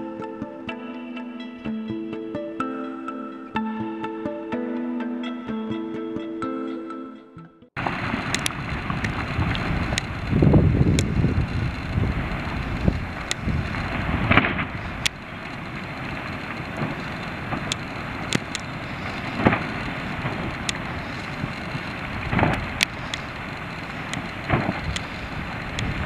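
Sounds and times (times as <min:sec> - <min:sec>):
deep rumbling: 0:07.8 - 0:26.0
sharp crackles: 0:07.8 - 0:26.0
volcanic ash column rushing: 0:07.8 - 0:26.0.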